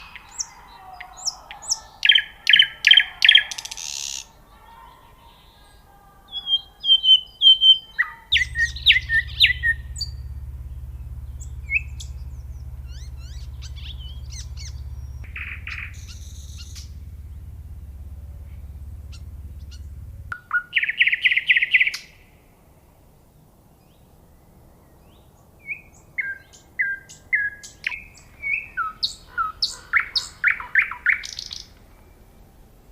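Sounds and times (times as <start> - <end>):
nightingale singing: 0.0 - 22.4, 23.3 - 32.9
steady low hum: 8.3 - 20.4.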